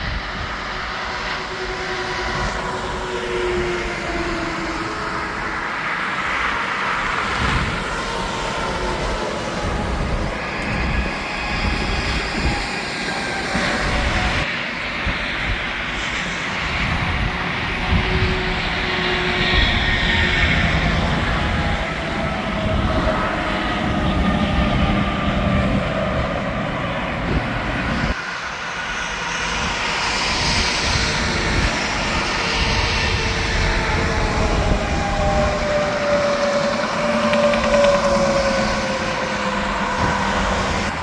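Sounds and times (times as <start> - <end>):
traffic passing: 0.1 - 14.8, 17.0 - 41.0.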